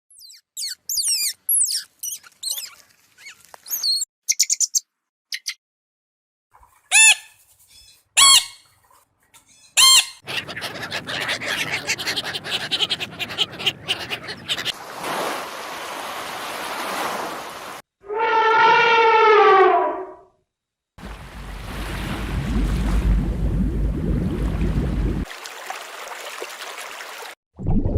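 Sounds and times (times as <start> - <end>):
loud arching animal calls: 9.8 - 14.8.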